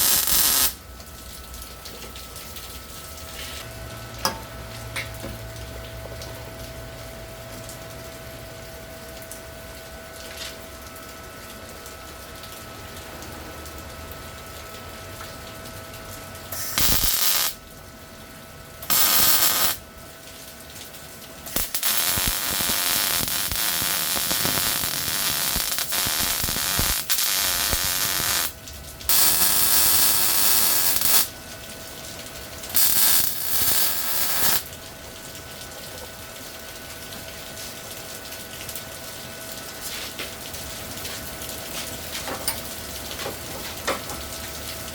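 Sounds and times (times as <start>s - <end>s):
welder arc crackling: 0.0s - 0.8s, 16.5s - 17.6s, 18.8s - 19.8s, 21.4s - 31.4s, 32.7s - 34.7s
faint steady hum: 0.0s - 39.7s.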